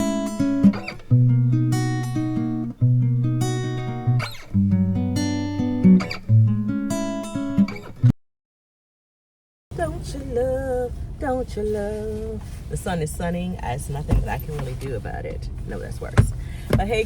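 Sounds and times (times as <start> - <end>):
plucked guitar chords: 0.0 - 8.1.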